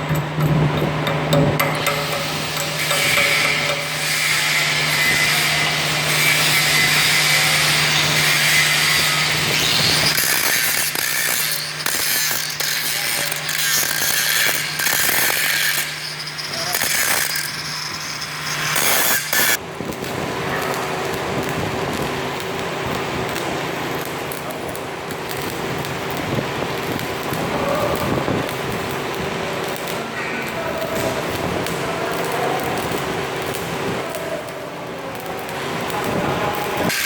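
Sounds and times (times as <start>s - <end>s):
scraping against metal: 0.0s - 5.6s.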